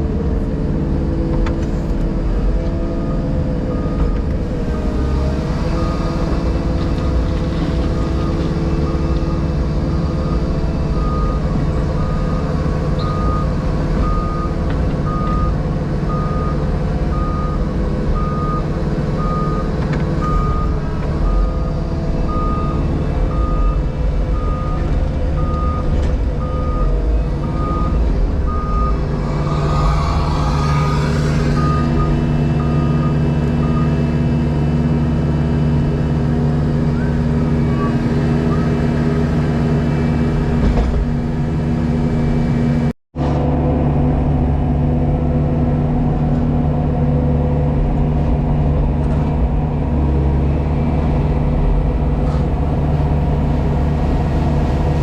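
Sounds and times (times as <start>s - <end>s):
diesel engine running: 0.0s - 55.0s
reversing alarm beeping: 24.4s - 34.0s.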